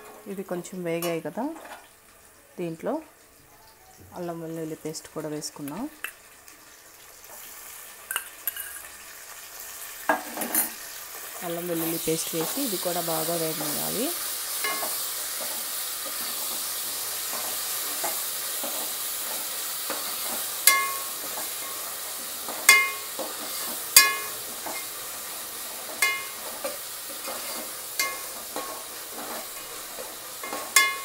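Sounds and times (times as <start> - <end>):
food sizzling in hot oil: 0.0 - 31.0
metal spoon clinking on pot: 8.1 - 8.9, 14.6 - 15.0, 20.7 - 21.1, 22.7 - 23.1, 24.0 - 24.4, 26.0 - 26.4, 28.0 - 28.8, 30.4 - 31.0.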